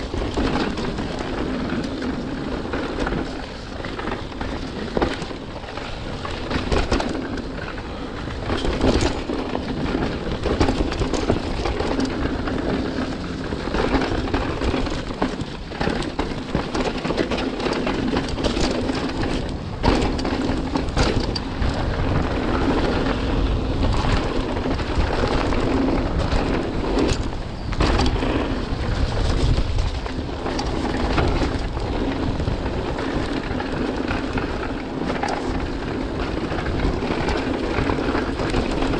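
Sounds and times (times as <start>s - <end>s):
bike knocking and rattling: 0.0s - 38.9s
tyre and wind rush: 0.0s - 38.9s.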